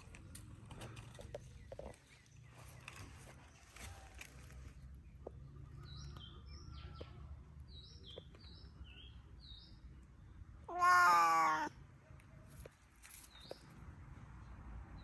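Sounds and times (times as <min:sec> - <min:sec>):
small birds chirping: 0:00.0 - 0:11.7, 0:12.7 - 0:15.0
cat meowing: 0:10.7 - 0:11.8.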